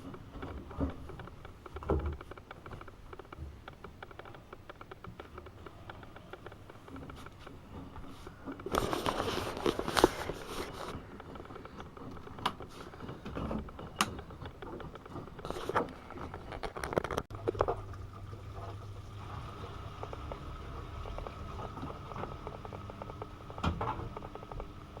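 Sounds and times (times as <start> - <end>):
low motor hum: 17.3 - 25.0.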